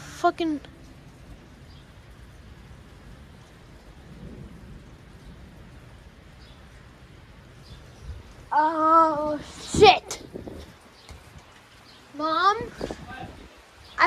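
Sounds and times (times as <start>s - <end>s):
steady rain: 0.0s - 14.0s
low thunder rumble: 0.6s - 11.4s.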